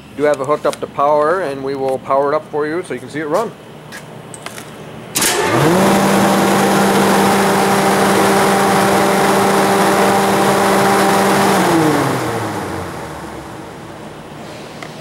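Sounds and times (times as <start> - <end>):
exhaust blower running: 5.0 - 15.0.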